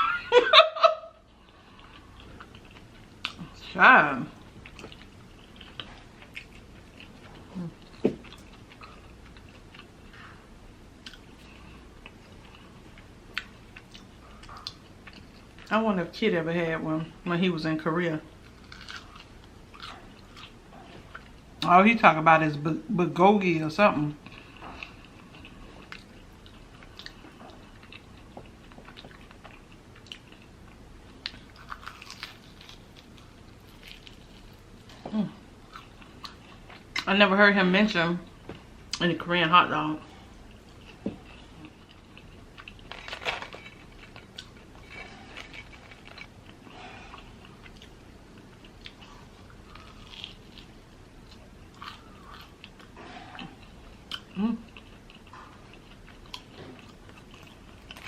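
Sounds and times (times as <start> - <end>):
person chewing crispy food: 1.2 - 3.6, 4.3 - 15.7, 18.3 - 21.6, 24.2 - 37.1, 40.1 - 58.0
crunching bite: 31.2 - 34.5, 49.6 - 54.3.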